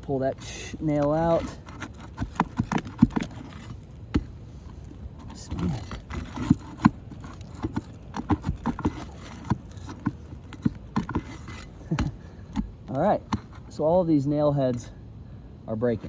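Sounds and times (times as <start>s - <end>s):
hand tool prying at nails: 0.7s - 4.4s, 5.2s - 13.6s.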